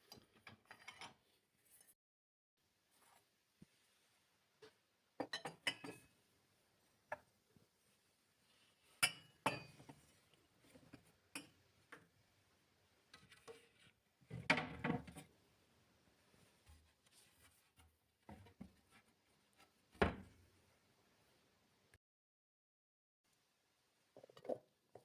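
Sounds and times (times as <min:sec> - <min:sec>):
dishes and glassware clinking: 0:00.1 - 0:01.2, 0:05.2 - 0:06.1, 0:09.0 - 0:10.0.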